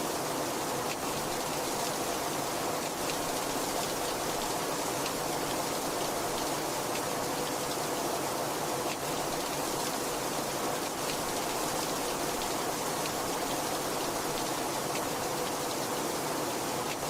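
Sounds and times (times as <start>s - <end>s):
heavy rain falling: 8.7s - 17.0s.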